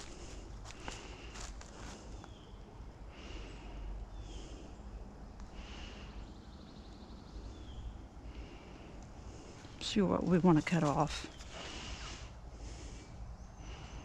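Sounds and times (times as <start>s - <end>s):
person breathing softly: 0.0s - 2.3s, 3.0s - 6.3s, 7.5s - 9.8s, 11.4s - 14.0s.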